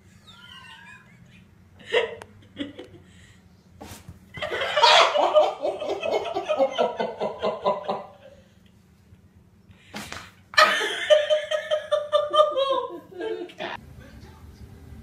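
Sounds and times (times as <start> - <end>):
person chuckling: 0.0 - 3.1.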